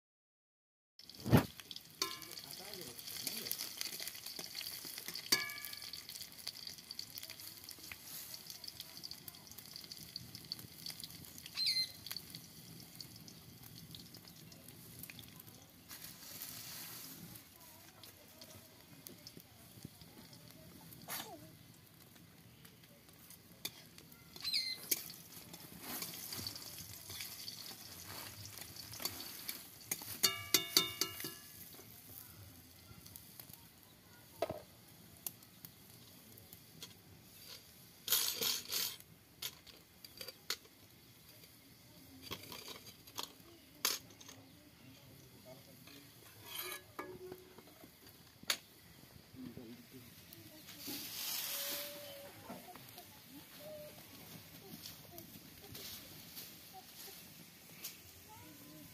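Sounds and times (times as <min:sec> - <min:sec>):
paste sizzling in oil: 0:01.0 - 0:39.1, 0:39.8 - 0:58.9
metal ladle scraping cookware: 0:23.6 - 0:25.2, 0:25.8 - 0:27.7, 0:28.9 - 0:31.6, 0:46.0 - 0:47.8
ringing metal clanks: 0:30.2 - 0:31.5.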